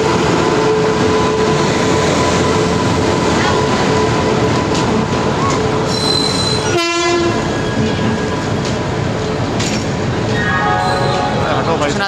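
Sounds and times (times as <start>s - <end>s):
train clicks: 4.4s - 6.7s, 7.7s - 10.4s
train horn blast: 6.7s - 7.4s.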